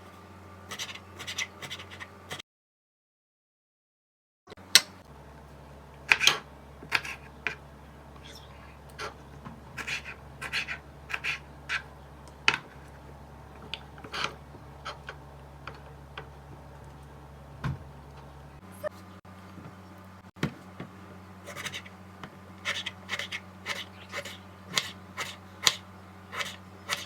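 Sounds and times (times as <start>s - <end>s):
steady low hum: 4.5s - 27.0s
kitchen utensils clicking and scraping: 22.6s - 27.0s.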